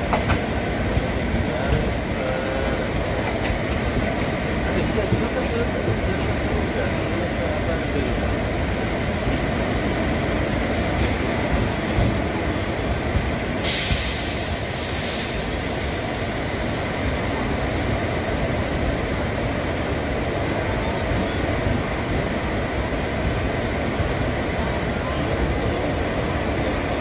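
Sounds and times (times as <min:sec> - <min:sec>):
train coach rumble from on board: 0:00.0 - 0:27.0.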